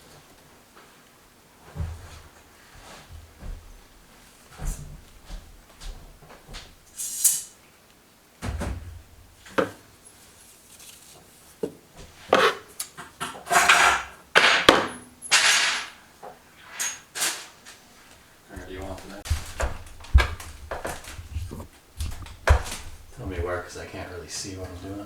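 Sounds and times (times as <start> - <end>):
rustling scrapes: 10.0 - 12.8, 17.7 - 23.6
handling knocks and clicks: 18.5 - 23.2.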